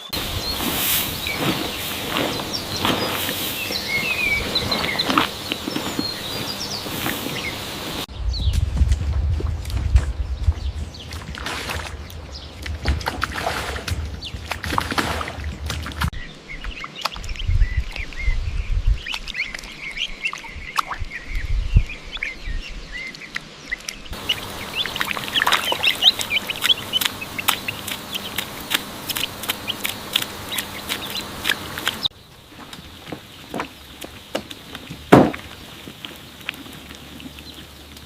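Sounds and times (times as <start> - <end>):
ducks calling: 0.0 - 8.1, 24.2 - 38.0
low rumbling thumps: 0.1 - 16.1.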